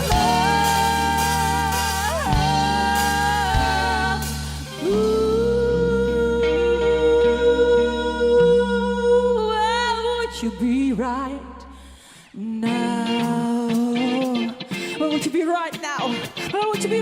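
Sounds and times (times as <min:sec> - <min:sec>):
live band music: 0:00.0 - 0:08.8, 0:12.7 - 0:17.0.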